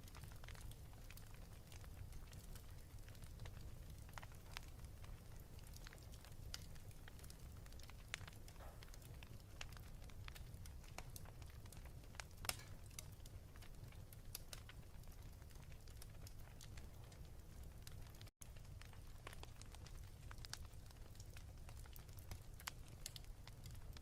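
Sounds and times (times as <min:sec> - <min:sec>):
wood fire crackling: 0:00.0 - 0:24.0
sharp pops and snaps: 0:05.3 - 0:13.3.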